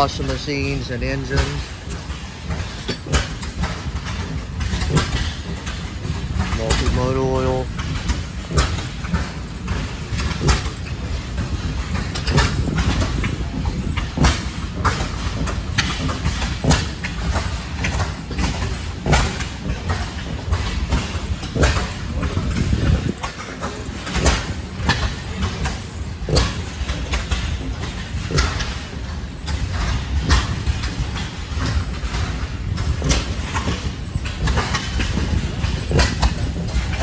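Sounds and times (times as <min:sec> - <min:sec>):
small gasoline engines running: 0:00.0 - 0:37.0.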